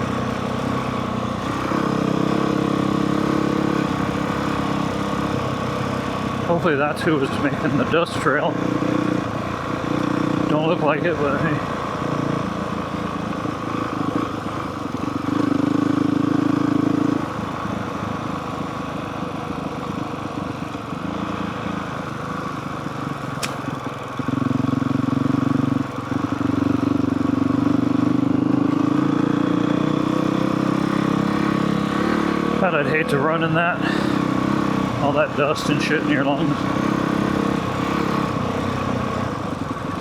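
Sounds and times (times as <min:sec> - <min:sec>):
dirt bike engine running: 0:00.0 - 0:40.0
sharp tick: 0:23.4 - 0:23.7.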